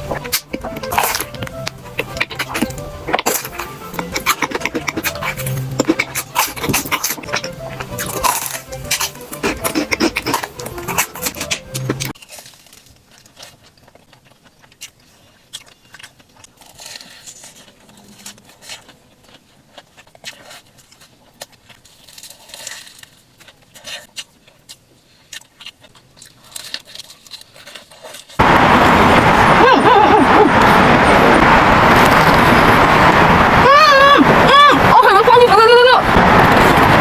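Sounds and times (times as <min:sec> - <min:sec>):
mouth clicks: 0:00.0 - 0:12.1
crunchy chewing: 0:00.0 - 0:28.4.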